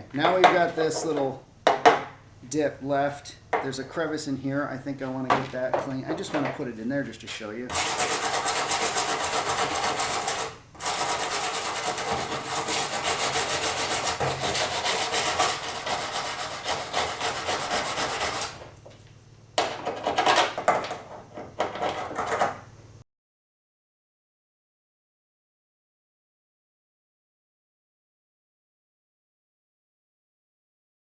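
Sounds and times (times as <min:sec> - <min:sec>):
scraping on sheet metal: 0:07.7 - 0:18.8, 0:19.6 - 0:22.6.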